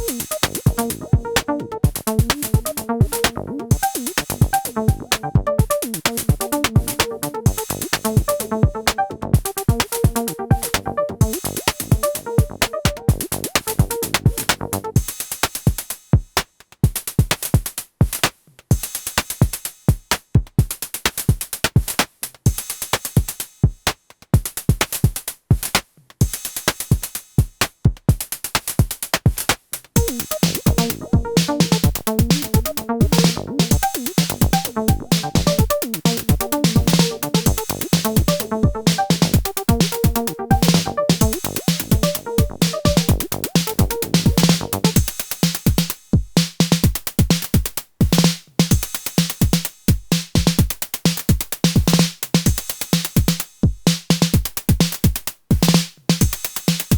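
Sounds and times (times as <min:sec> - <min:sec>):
synth bassline: 0:00.0 - 0:15.0, 0:30.0 - 0:45.0
techno drum pattern: 0:00.0 - 0:56.9.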